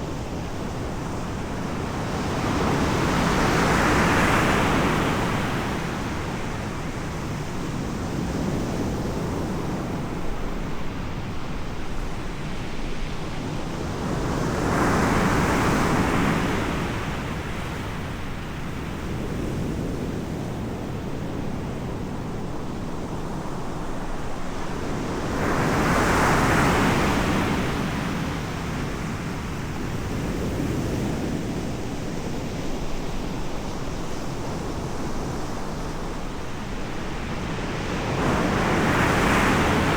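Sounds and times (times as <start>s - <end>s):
waves breaking on shore: 34.8s - 39.9s.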